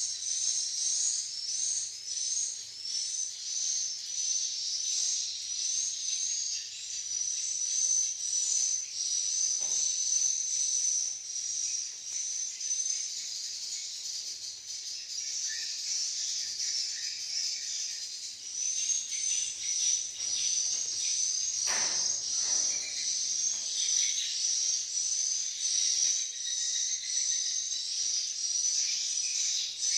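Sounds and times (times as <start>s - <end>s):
knock: 21.6s - 23.7s.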